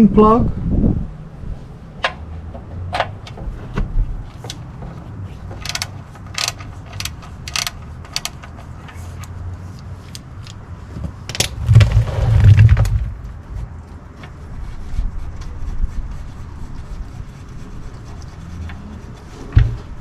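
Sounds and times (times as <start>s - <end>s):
ratchet clicking: 5.6s - 10.6s.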